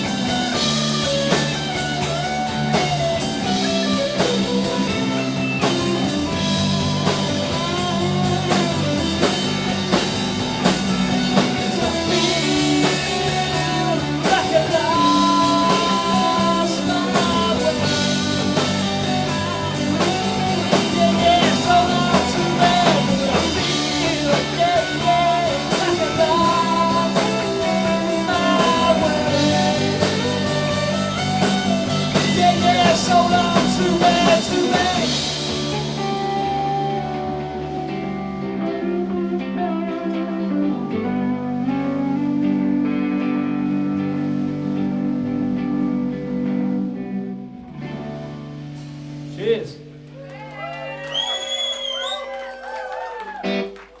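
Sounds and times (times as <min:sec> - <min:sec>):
drum kit beat: 0:00.0 - 0:39.0
lead guitar bending pitch: 0:00.0 - 0:50.2
electric guitars: 0:00.0 - 0:54.0.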